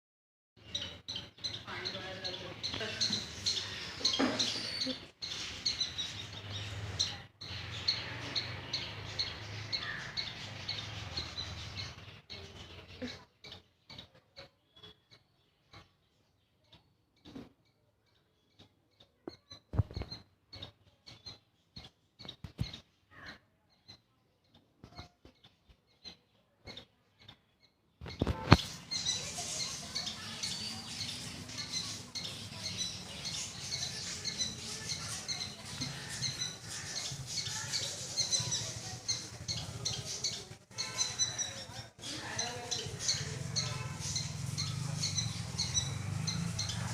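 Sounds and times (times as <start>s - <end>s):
squirrel chirping: 0.6s - 15.4s, 26.0s - 46.9s.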